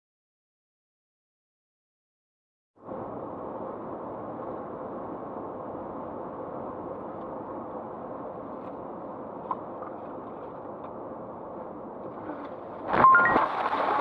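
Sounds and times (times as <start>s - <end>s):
muffled car engine and road noise: 2.8s - 14.0s.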